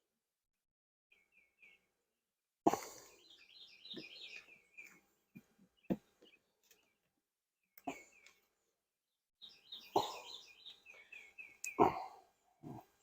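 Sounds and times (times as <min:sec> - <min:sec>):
small bird twittering chirps: 0:03.2 - 0:05.0, 0:09.4 - 0:12.1.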